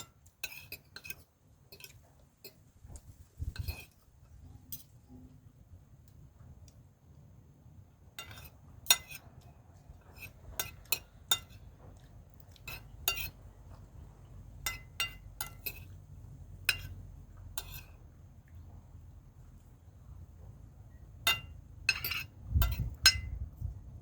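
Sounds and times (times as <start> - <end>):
cutlery clinking on a dish: 0.0 - 2.6, 8.2 - 9.3, 10.1 - 13.4, 14.7 - 16.0, 16.7 - 17.0, 17.6 - 18.0, 21.3 - 23.3.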